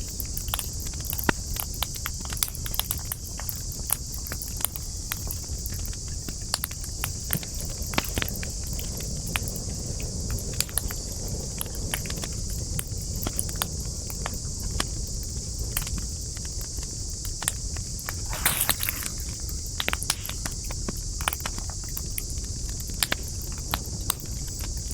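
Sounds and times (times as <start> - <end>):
campfire crackling and popping: 17.2 - 24.9
high-pitched hiss: 18.0 - 21.2.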